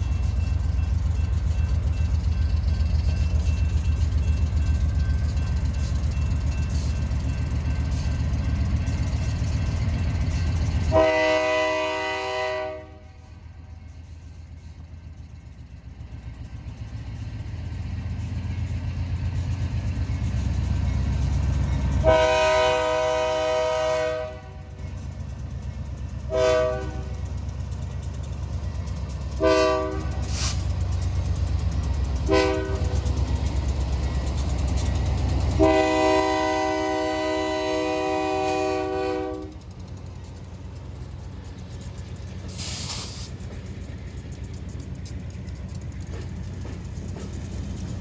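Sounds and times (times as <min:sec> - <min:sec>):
diesel locomotive rumble: 0:00.0 - 0:48.0
train air horn blasts: 0:10.9 - 0:13.4, 0:22.0 - 0:24.7, 0:26.3 - 0:27.2, 0:29.4 - 0:30.6, 0:32.2 - 0:33.0, 0:35.6 - 0:39.6.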